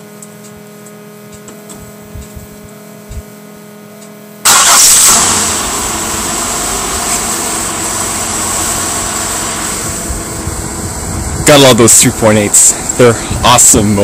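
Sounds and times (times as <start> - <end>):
car engine starting and idling: 4.4 - 13.5.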